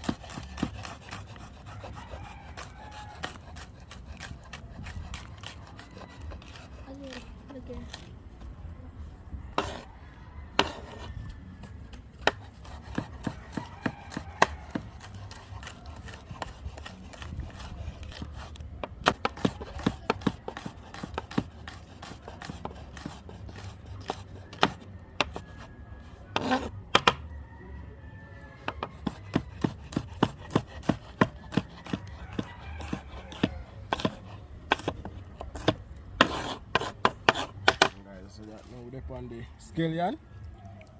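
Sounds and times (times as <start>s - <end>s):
knife chopping on cutting board: 0.0s - 1.6s, 12.2s - 25.5s, 26.4s - 27.2s, 28.7s - 38.0s.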